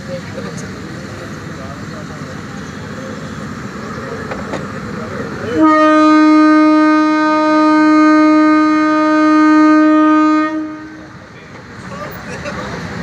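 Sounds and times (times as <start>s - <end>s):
train air horn blast: 5.5s - 11.2s.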